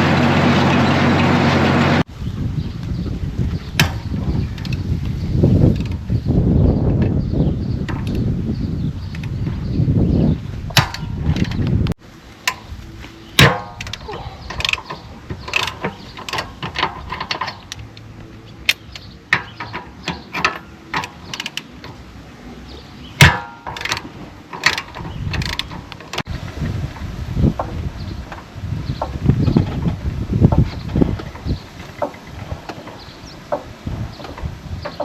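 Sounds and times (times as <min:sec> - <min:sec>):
mechanical clicks and knocks: 0:13.4 - 0:26.3.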